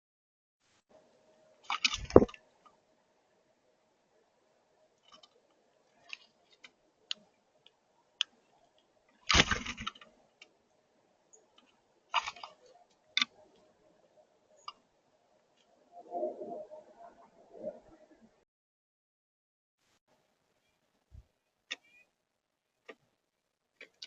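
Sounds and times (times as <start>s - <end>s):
birds pecking seed: 11.3s - 13.7s.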